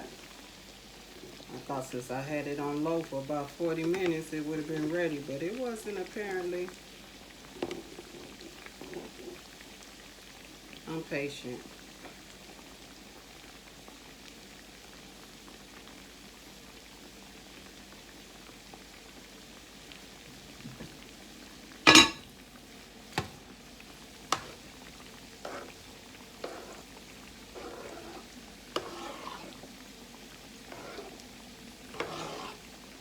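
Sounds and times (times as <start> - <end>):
food sizzling in grease: 0.0 - 33.0
grease popping: 20.2 - 33.0.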